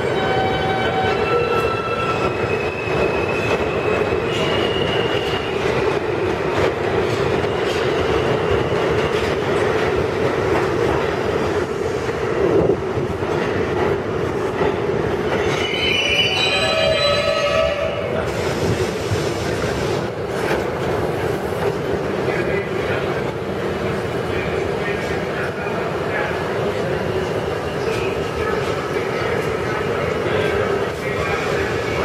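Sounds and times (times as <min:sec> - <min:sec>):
subway train wheels rumbling: 0:00.0 - 0:32.0
high wheel squeal: 0:15.3 - 0:18.1.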